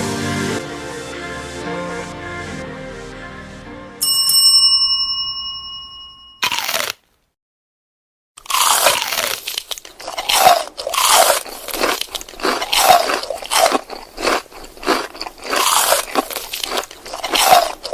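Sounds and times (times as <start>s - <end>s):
crunchy food being chewed: 6.4s - 7.0s, 8.4s - 17.9s.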